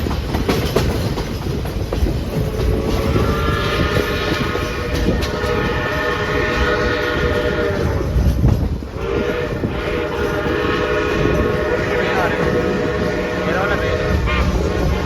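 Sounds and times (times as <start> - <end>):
moving train rumble: 0.0 - 15.0
steam locomotive whistle: 2.4 - 8.3, 8.9 - 15.0.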